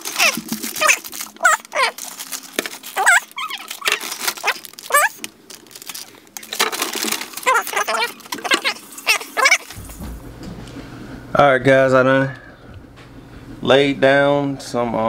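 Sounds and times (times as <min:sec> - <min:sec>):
animal short high calls: 0:00.0 - 0:02.2, 0:02.9 - 0:05.2, 0:07.4 - 0:09.8
crinkling noise: 0:00.0 - 0:10.8.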